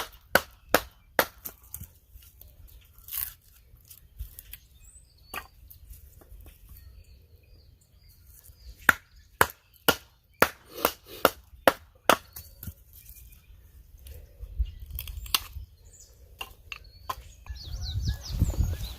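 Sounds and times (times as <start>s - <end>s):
wood chopping strikes: 0.0s - 1.9s, 8.8s - 12.8s.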